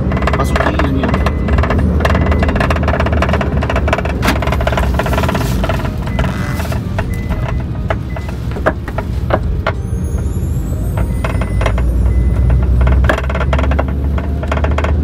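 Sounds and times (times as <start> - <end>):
sharp clicks from exhaust pipe: 0.0 - 6.4, 10.9 - 15.0
car exhaust low rumble: 0.0 - 15.0.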